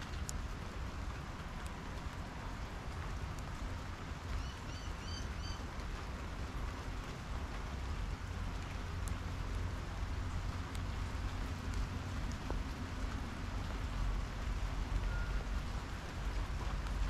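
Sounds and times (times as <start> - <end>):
low steady rumble: 0.0 - 17.0
rain pattering on table: 0.0 - 17.0
bird chirping: 4.4 - 5.6.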